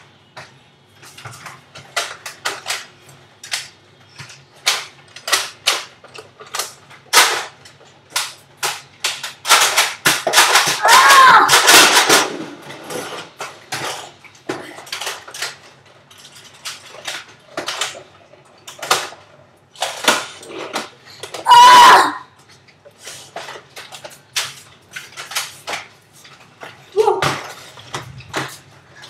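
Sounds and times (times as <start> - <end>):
clicks knocks and clatters: 0.4 - 21.4, 22.4 - 29.0
person yelling: 10.8 - 11.5, 21.4 - 22.2, 27.0 - 27.3.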